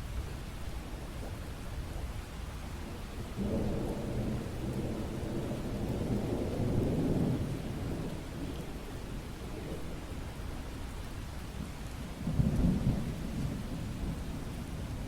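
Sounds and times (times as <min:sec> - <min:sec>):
steady rain: 0:00.0 - 0:15.0
low thunder rumble: 0:03.4 - 0:10.1.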